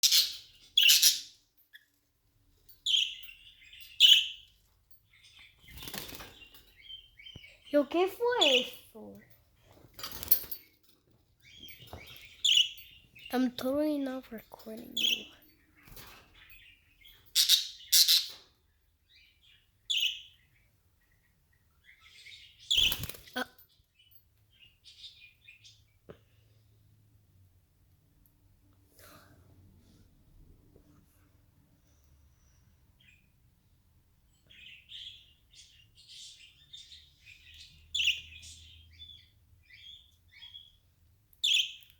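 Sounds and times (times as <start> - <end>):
high-pitched bird chirps: 0.0 - 1.4, 2.9 - 4.5, 11.4 - 13.4, 14.7 - 15.5, 16.4 - 18.4, 41.4 - 41.9
birds chirping: 0.0 - 2.0, 2.6 - 26.7, 31.8 - 41.9.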